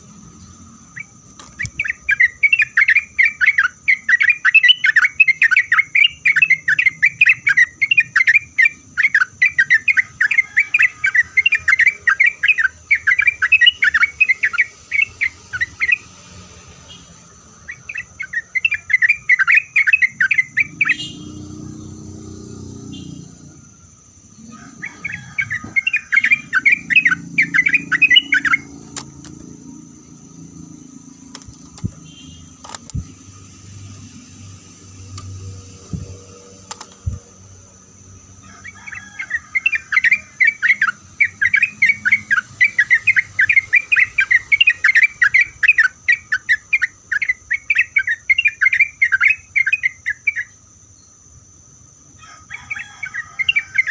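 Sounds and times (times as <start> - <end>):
bird chattering song: 0.0 - 16.2, 16.8 - 51.2, 52.6 - 53.9.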